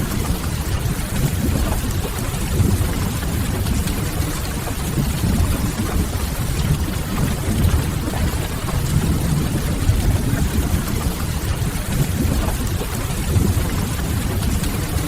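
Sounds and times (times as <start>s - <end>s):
steady rain: 0.5s - 15.0s
wood fire crackling: 6.8s - 10.6s.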